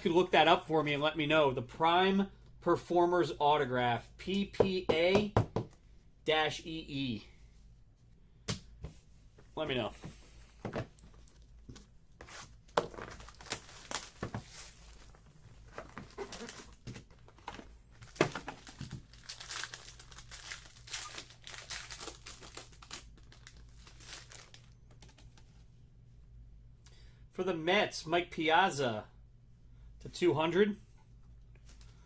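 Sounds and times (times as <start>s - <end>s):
wrappers crinkling and tearing: 12.9s - 15.2s, 15.8s - 17.4s, 18.0s - 25.2s.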